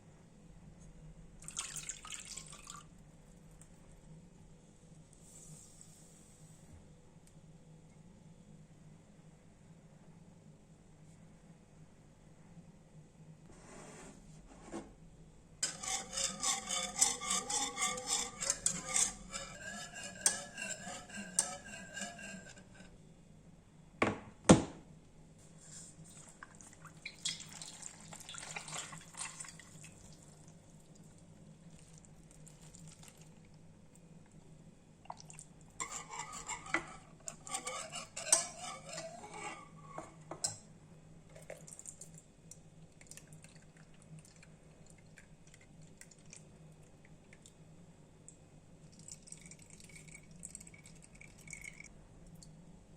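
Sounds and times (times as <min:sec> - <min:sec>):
utensil scraping in a bowl: 0:15.6 - 0:23.0, 0:35.8 - 0:40.6.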